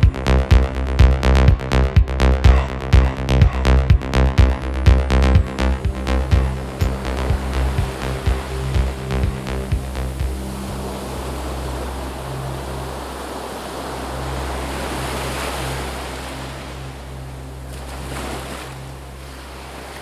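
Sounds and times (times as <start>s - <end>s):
steady low drone: 0.0s - 19.8s
surf-like rushing noise: 5.4s - 20.0s.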